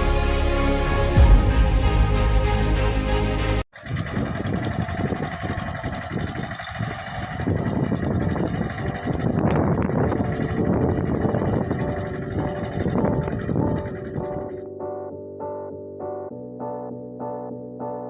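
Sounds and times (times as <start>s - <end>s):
music: 0.0s - 3.6s, 11.3s - 18.0s
tractor diesel engine running: 3.8s - 14.6s.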